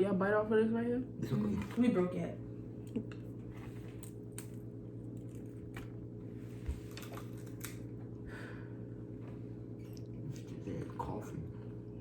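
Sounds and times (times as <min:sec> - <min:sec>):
low hum: 0:00.0 - 0:12.0
people chewing crunchy snack: 0:02.9 - 0:06.0, 0:06.7 - 0:08.2.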